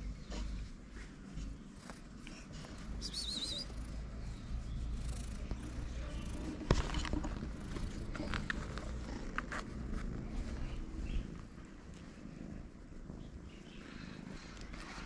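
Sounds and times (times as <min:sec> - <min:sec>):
low outdoor rumble: 0:00.0 - 0:15.0
small birds chirping: 0:02.6 - 0:06.8, 0:10.2 - 0:15.0.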